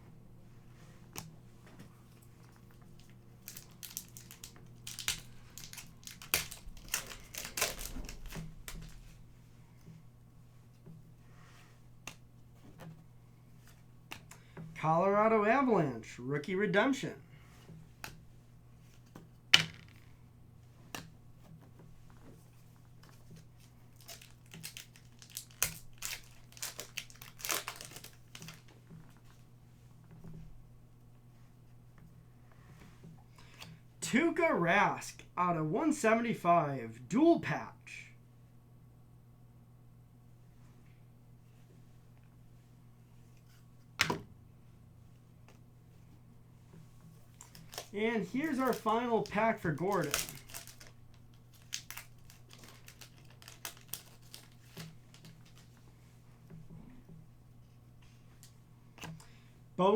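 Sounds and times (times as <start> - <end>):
plastic wrapper crinkling: 2.4 - 9.2, 23.0 - 28.8, 47.2 - 55.8.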